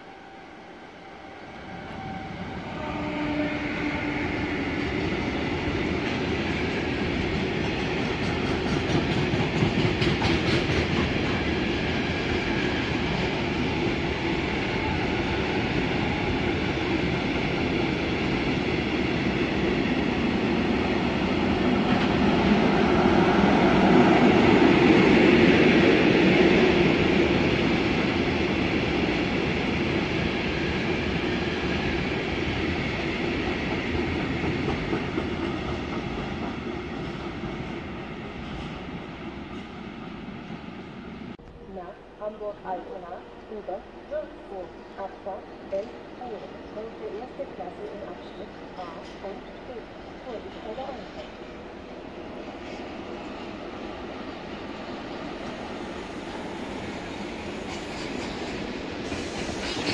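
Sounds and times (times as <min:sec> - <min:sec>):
freight train wheels on rails: 0:00.8 - 0:41.4, 0:44.1 - 0:59.9.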